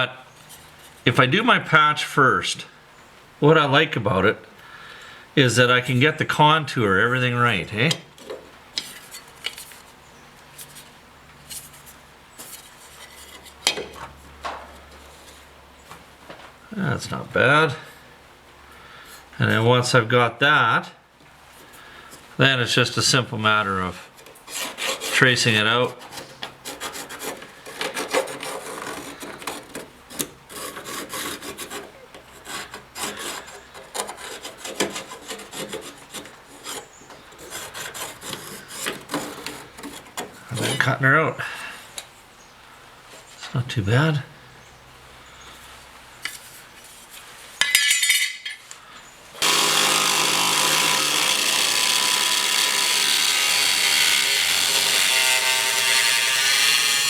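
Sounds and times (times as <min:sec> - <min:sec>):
scratching on steel sheet: 0:24.2 - 0:40.9, 0:49.4 - 0:57.0.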